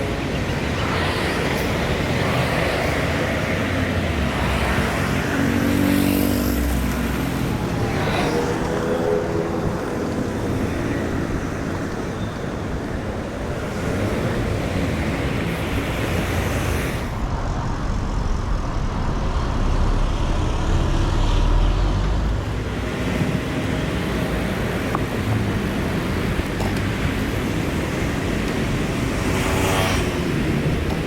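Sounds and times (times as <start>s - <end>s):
cars and motorbikes passing: 0.0s - 31.0s
heavy low rumble: 6.7s - 22.9s.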